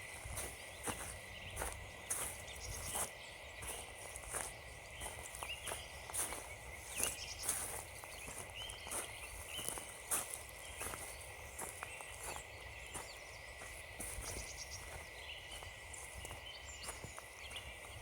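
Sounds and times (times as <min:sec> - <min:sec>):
footsteps crunching on frozen leaves: 0:00.0 - 0:18.0
small birds chirping: 0:00.0 - 0:18.0.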